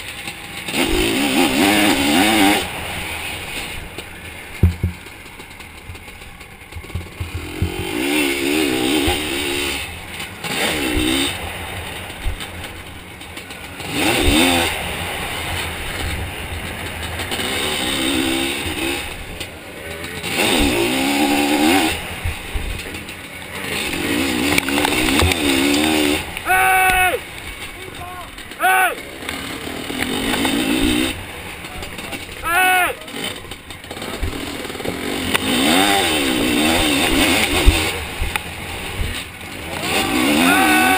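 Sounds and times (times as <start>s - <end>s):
two-stroke engine revving: 0.0s - 40.9s
low thumps: 3.9s - 8.2s, 24.4s - 28.6s.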